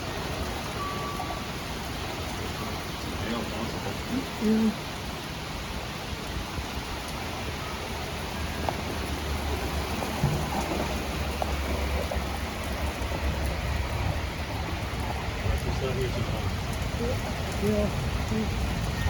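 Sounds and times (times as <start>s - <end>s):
heavy rain: 0.0s - 19.0s
thunder rumble: 6.5s - 19.0s.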